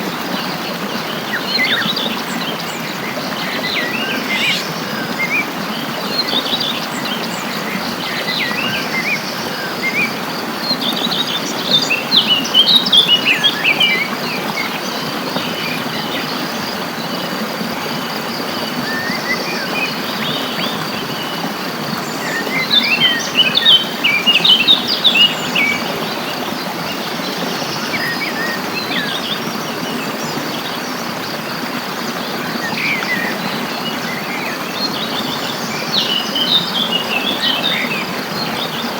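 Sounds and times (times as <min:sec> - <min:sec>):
small birds chirping: 0:00.2 - 0:38.9
high insect drone: 0:00.5 - 0:14.0.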